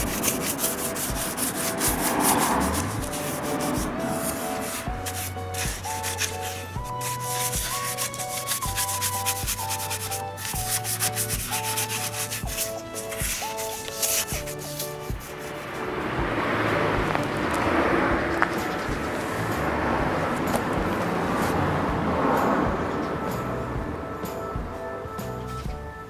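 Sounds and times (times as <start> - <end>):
paintbrush scrubbing wood: 0.0 - 16.7
background music with bass: 0.0 - 26.0
outdoor noise haze: 0.0 - 26.0.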